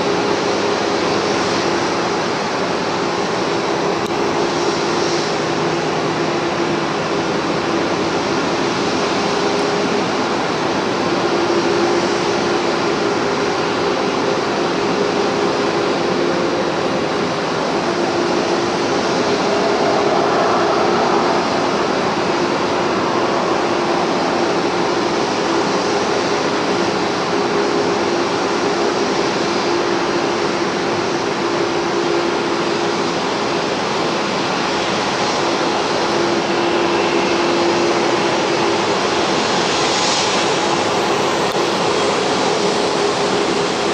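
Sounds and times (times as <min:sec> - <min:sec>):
jet engines running: 0:00.0 - 0:43.9
faint wavering hum: 0:03.2 - 0:28.5.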